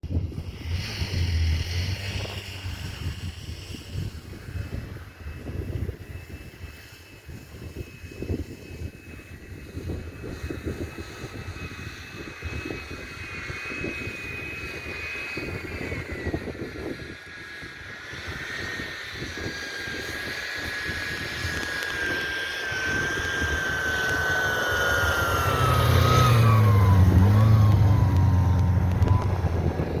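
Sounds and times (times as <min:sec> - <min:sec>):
snowmobile engine whine: 0:00.0 - 0:30.0
wind rumble on microphone: 0:00.0 - 0:30.0
heavy low drone: 0:19.9 - 0:30.0.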